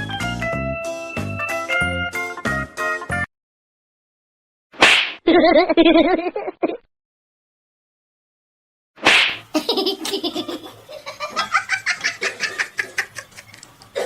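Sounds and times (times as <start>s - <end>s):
person laughing hard: 5.3s - 6.8s, 9.5s - 14.0s.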